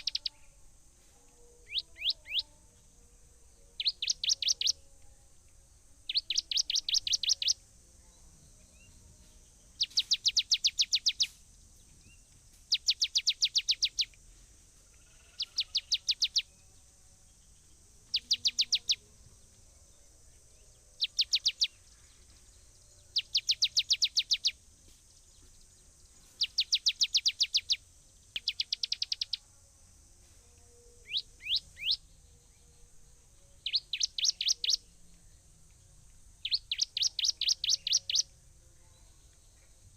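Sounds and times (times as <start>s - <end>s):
bird singing whistled notes: 0.0s - 0.7s, 1.3s - 2.5s, 3.4s - 5.1s, 6.1s - 7.6s, 8.4s - 14.2s, 15.2s - 19.1s, 20.6s - 29.5s, 30.7s - 35.5s, 36.4s - 39.8s
faint high-pitched hiss: 0.0s - 39.9s.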